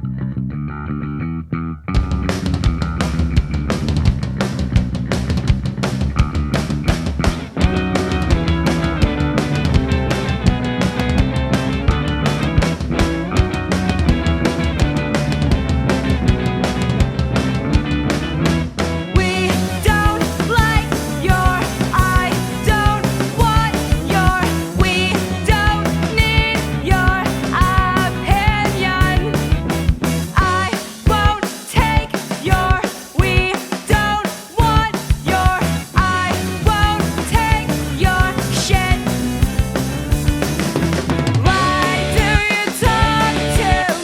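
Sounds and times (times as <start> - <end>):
drum kit beat: 1.9 - 44.0
punk rock band playing: 1.9 - 44.0
person singing: 19.2 - 39.2, 41.4 - 44.0.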